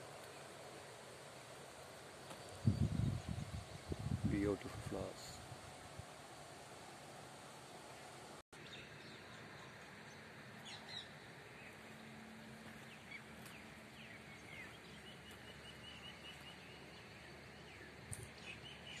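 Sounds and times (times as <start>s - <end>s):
outdoor background noise: 0.0s - 19.0s
small bird song: 2.1s - 5.2s, 7.9s - 19.0s.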